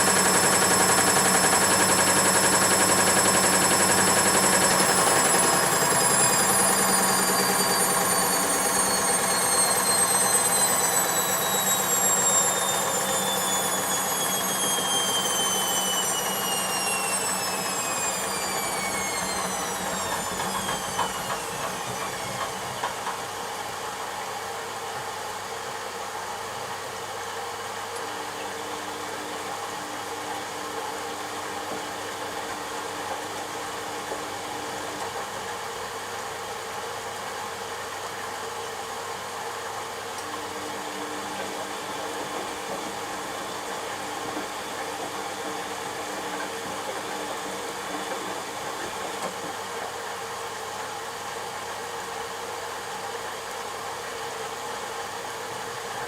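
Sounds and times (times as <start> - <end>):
washing machine drum spinning down: 0.0 - 23.9.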